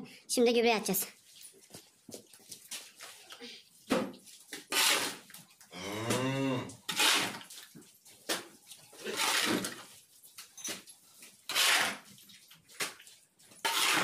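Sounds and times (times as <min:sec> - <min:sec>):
manure scraping strokes: 0:04.3 - 0:06.1, 0:06.9 - 0:10.4, 0:11.2 - 0:12.9, 0:13.6 - 0:14.0
cow mooing: 0:05.7 - 0:06.8.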